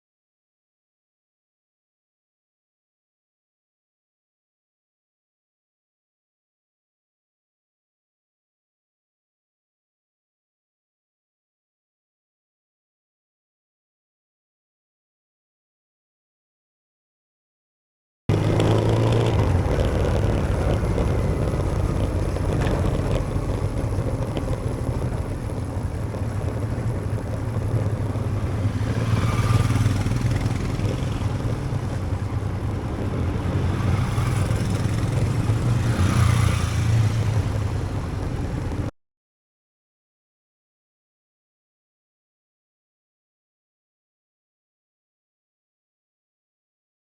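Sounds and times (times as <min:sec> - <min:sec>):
motorcycle engine running: 0:18.3 - 0:38.9
wind noise: 0:18.3 - 0:38.9.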